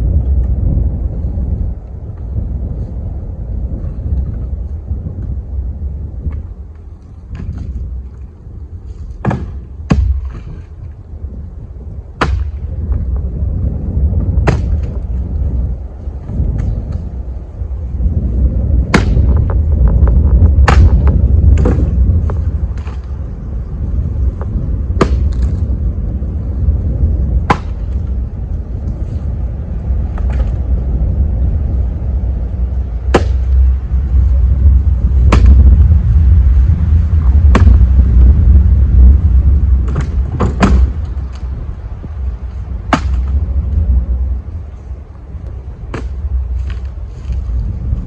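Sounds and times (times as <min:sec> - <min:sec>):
wind rumble on microphone: 0:00.0 - 0:48.0
wooden knocks of firewood: 0:09.1 - 0:10.7, 0:12.2 - 0:13.1, 0:14.4 - 0:15.0, 0:18.9 - 0:23.1, 0:25.0 - 0:25.6, 0:27.5 - 0:28.0, 0:30.1 - 0:30.5, 0:33.1 - 0:33.6, 0:39.8 - 0:41.4, 0:42.9 - 0:43.4, 0:45.9 - 0:46.9.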